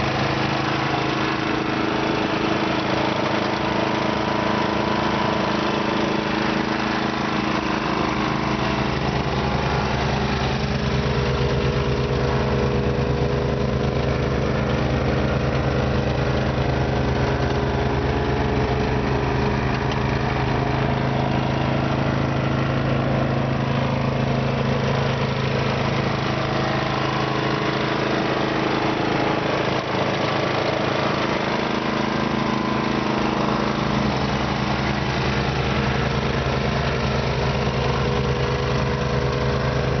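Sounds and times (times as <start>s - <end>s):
snow blower engine running: 0.0s - 40.0s.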